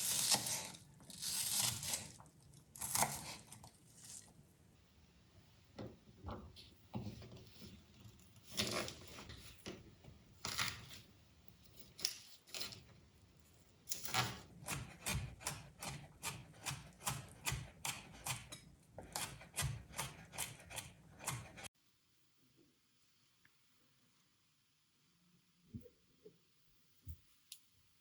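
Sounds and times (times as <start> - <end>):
knife chopping on cutting board: 14.6 - 21.6.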